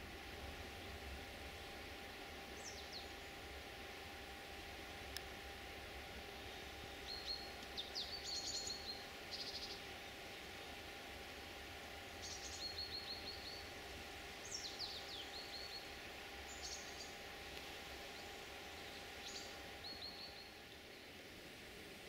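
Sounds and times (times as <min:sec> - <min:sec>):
outdoor background noise: 0:00.0 - 0:22.0
songbird singing: 0:00.7 - 0:03.7, 0:06.0 - 0:11.0, 0:12.0 - 0:21.4.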